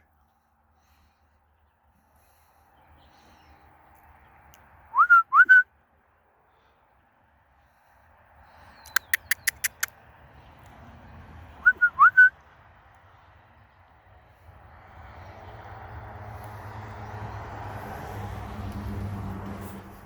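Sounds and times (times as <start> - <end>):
sharp clicks: 8.8 - 9.9
bird whistling call: 11.6 - 12.3.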